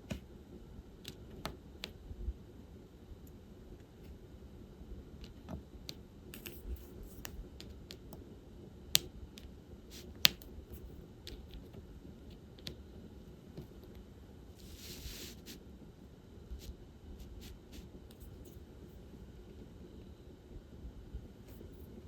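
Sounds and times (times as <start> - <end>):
drill pen clicking and tapping beads: 5.2 - 8.3, 8.9 - 12.8.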